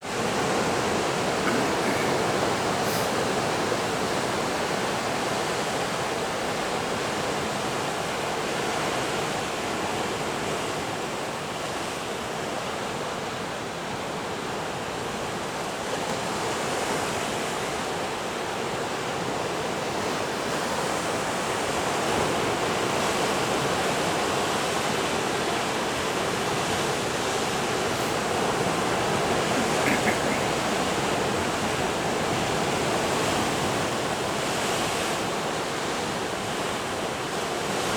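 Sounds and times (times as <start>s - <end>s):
surf breaking on shore: 0.1s - 5.7s.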